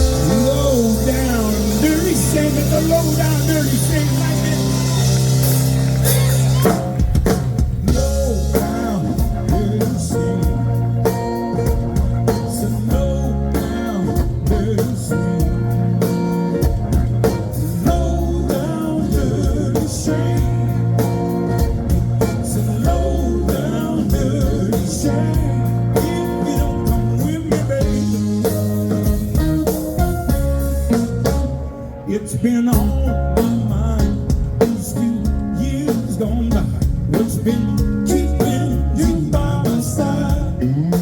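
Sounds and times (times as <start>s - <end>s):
bass notes: 0.0s - 41.0s
electric guitar: 0.0s - 41.0s.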